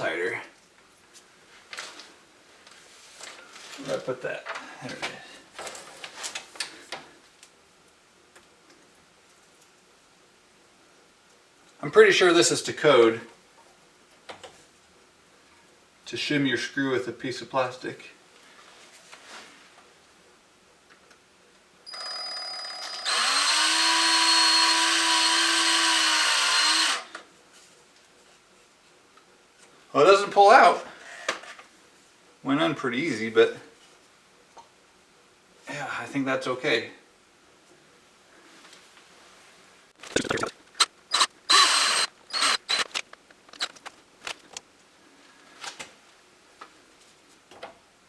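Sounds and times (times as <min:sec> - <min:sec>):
power drill motor whining: 0:21.9 - 0:27.1, 0:40.8 - 0:43.8
screw and plastic scraping: 0:40.8 - 0:44.6.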